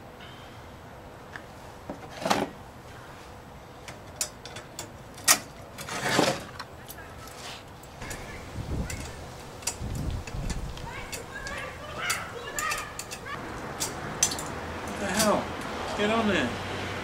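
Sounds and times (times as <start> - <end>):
steel pieces knocking and clicking: 8.8 - 15.4.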